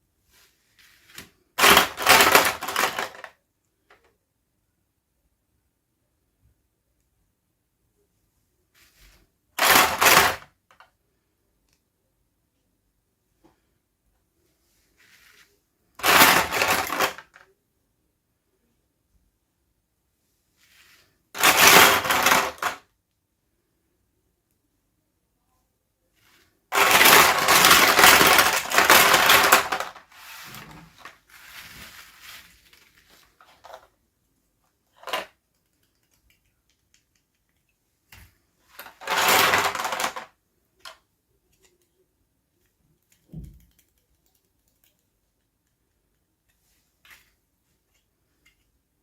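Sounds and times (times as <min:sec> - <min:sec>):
clicks and taps of plastic pieces: 0:01.1 - 0:04.2, 0:34.9 - 0:47.3
plastic packaging crinkling: 0:01.6 - 0:03.3, 0:21.4 - 0:22.8, 0:26.7 - 0:33.9, 0:38.8 - 0:40.3.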